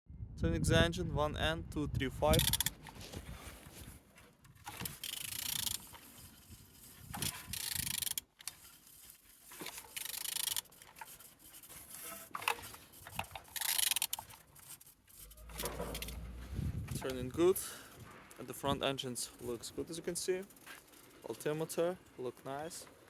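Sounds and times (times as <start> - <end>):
engine rubbing and scraping: 10.6 - 21.6.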